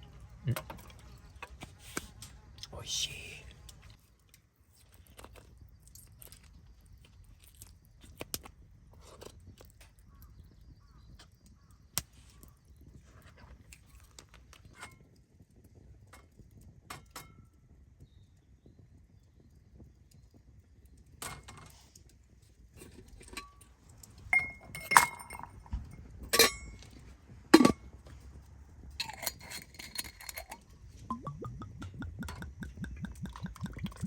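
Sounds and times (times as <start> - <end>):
utensils clinking against dishes: 26.4 - 26.8, 29.0 - 30.6.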